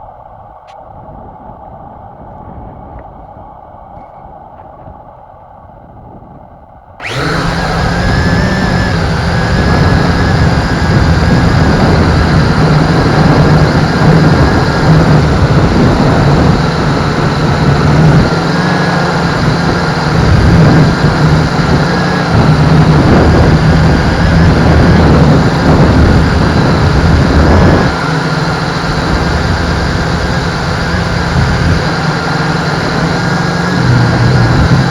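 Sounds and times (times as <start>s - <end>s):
strong wind rumble: 0.0s - 34.9s
quadcopter motors buzzing: 7.0s - 34.9s.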